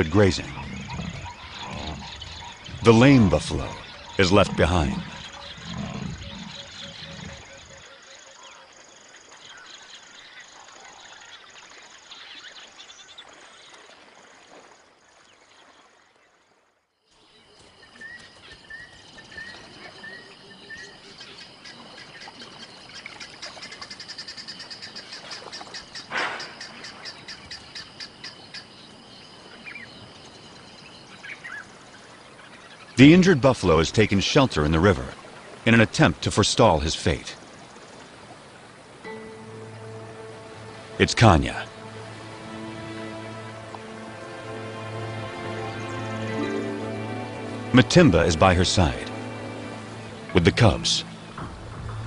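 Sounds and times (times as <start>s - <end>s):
birds calling: 0.0s - 14.5s, 17.1s - 52.0s
insects trilling: 0.0s - 15.8s, 17.1s - 35.7s, 36.3s - 51.6s.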